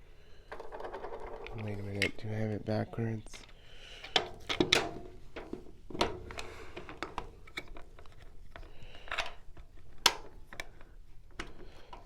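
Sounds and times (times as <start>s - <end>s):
clicks and knocks of handled parts: 3.4s - 12.0s.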